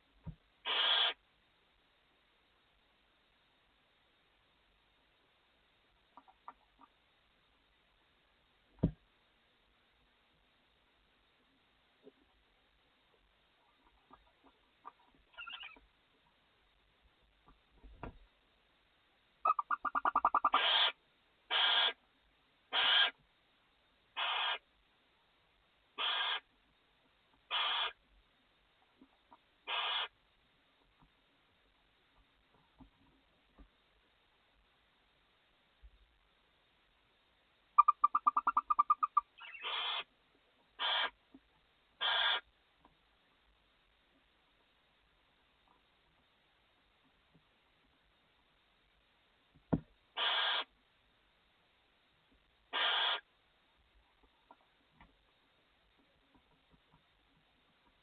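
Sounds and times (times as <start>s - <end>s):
owl chittering: 0.6s - 1.2s, 13.8s - 15.8s, 19.4s - 22.0s, 22.7s - 23.2s, 24.2s - 24.7s, 26.0s - 26.5s, 27.5s - 28.0s, 29.6s - 30.2s, 37.8s - 40.1s, 40.8s - 41.2s, 42.0s - 42.5s, 50.2s - 50.7s, 52.7s - 53.3s
owl hissing calls: 0.6s - 1.2s, 15.3s - 15.8s, 19.4s - 22.0s, 22.7s - 23.2s, 24.2s - 24.7s, 26.0s - 26.5s, 27.5s - 28.0s, 29.6s - 30.2s, 37.8s - 40.1s, 40.8s - 41.2s, 42.0s - 42.5s, 50.2s - 50.8s, 52.7s - 53.3s.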